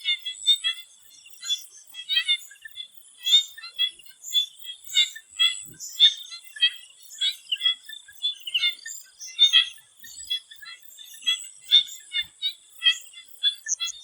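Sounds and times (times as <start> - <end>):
frogs calling in chorus: 0.0 - 14.0.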